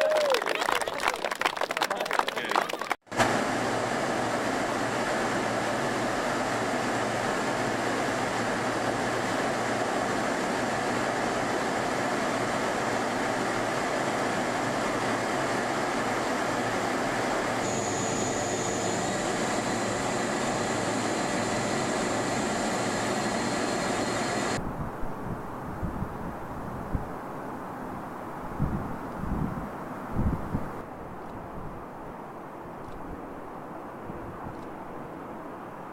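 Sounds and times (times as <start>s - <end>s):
jet engines running: 1.9s - 24.6s
high whine: 3.1s - 24.6s.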